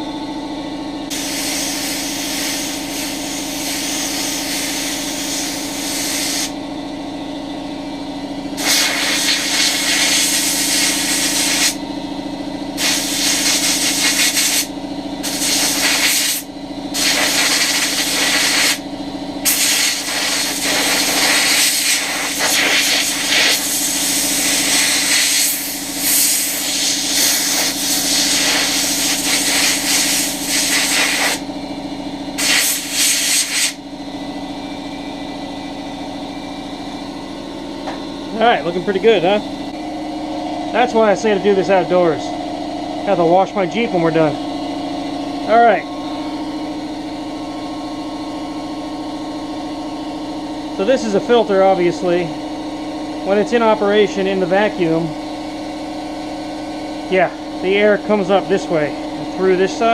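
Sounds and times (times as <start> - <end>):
steady low hum: 0.0 - 59.9
air blow gun hissing: 1.1 - 6.6, 8.6 - 11.8, 12.8 - 18.8, 19.4 - 31.4, 32.4 - 33.8.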